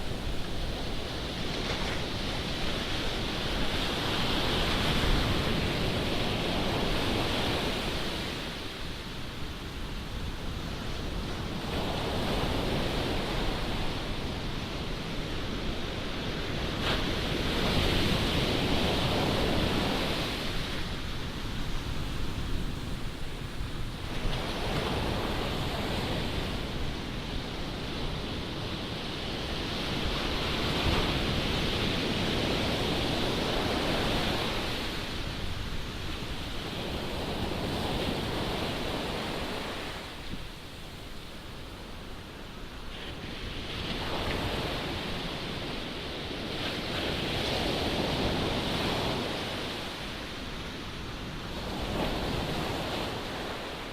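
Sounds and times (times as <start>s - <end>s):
ocean surf breaking: 15.4s - 53.9s.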